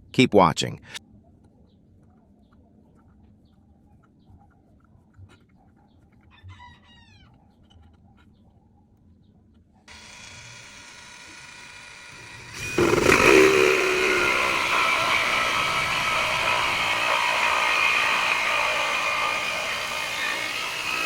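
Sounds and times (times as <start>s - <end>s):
electric drill whining: 9.9s - 21.0s
hole saw cutting wood: 9.9s - 21.0s.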